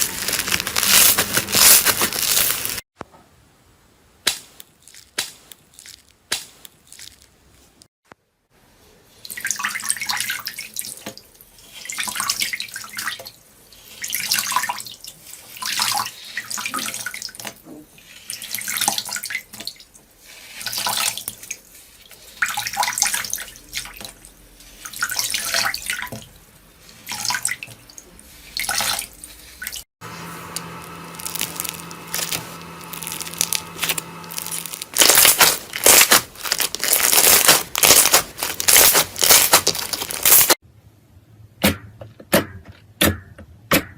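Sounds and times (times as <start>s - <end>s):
slime crackling: 0.0s - 2.8s, 30.2s - 40.6s
wet slime squelching: 0.0s - 2.8s, 20.4s - 40.6s.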